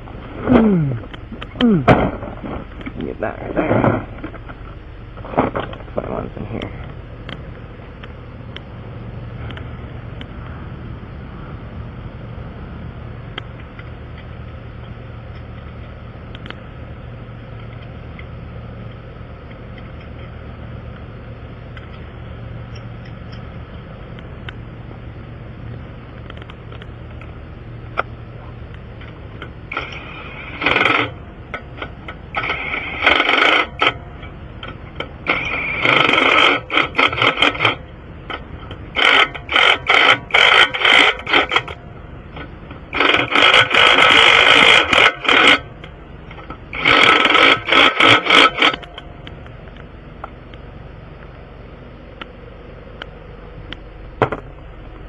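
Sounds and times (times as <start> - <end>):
engine idle hum: 0.0 - 55.0
impact wrench bursts: 29.7 - 41.8, 42.4 - 45.8, 46.4 - 49.0.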